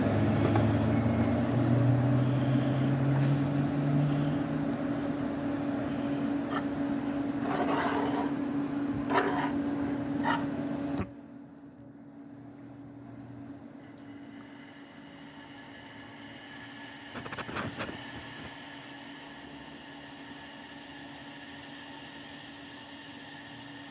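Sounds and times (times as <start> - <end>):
faint high whine: 11.0 - 23.9.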